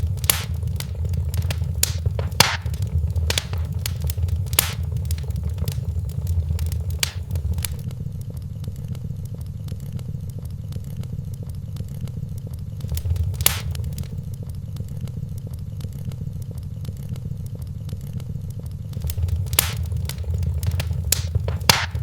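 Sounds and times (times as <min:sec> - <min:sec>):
wood fire crackling: 0:00.0 - 0:07.9, 0:12.8 - 0:14.5, 0:18.9 - 0:22.0.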